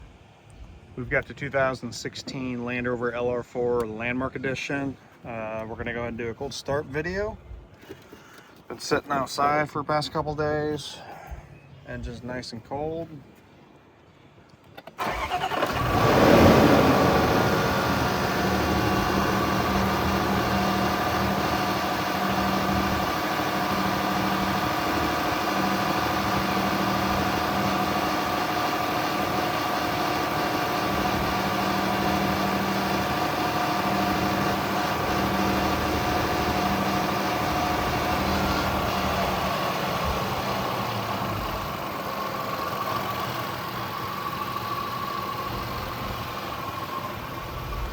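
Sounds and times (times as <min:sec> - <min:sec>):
car engine starting and idling: 0:14.8 - 0:47.9.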